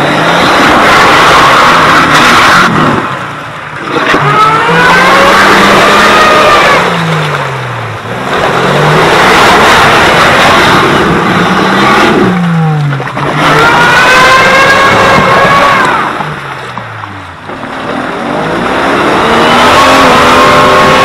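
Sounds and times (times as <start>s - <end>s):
engine revving: 0.0s - 21.0s
loud rush of noise: 0.0s - 21.0s.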